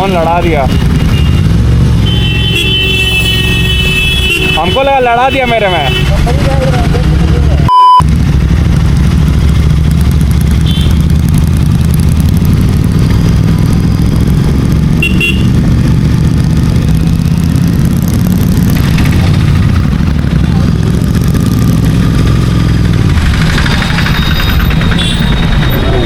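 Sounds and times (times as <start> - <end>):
motorcycle engine running: 0.0 - 4.6, 5.9 - 26.0
horn toots: 0.7 - 6.3, 10.6 - 11.1, 14.9 - 15.6, 24.1 - 26.0.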